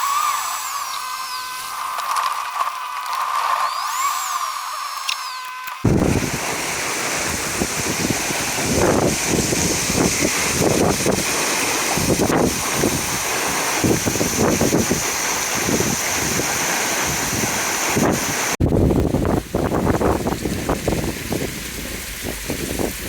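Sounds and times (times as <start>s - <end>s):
steady rushing hiss: 0.0s - 5.1s, 5.8s - 23.0s
wind buffeting microphone: 5.8s - 23.0s.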